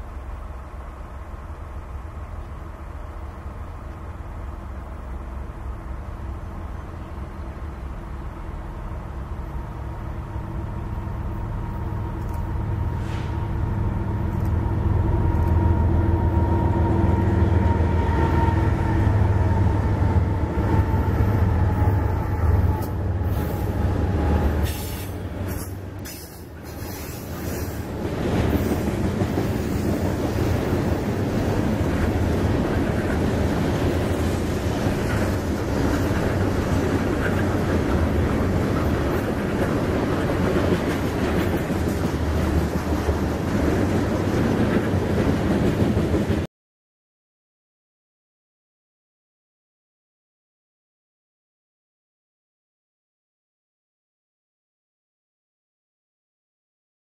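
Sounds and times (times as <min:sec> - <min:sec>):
locomotive engine drone: 0:00.0 - 0:45.0
wheel-on-rail noise: 0:05.2 - 0:46.5
train knocks: 0:22.4 - 0:46.5.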